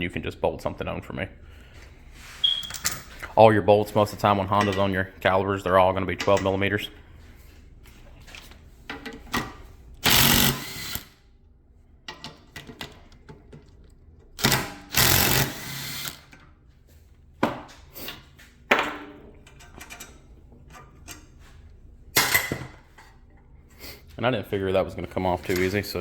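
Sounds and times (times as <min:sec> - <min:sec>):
impact wrench running: 0:10.0 - 0:11.2, 0:14.4 - 0:16.4.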